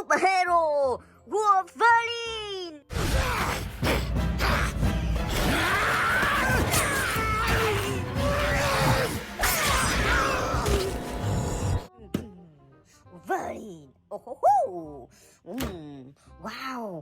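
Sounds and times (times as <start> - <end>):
loud music: 2.9 - 11.9.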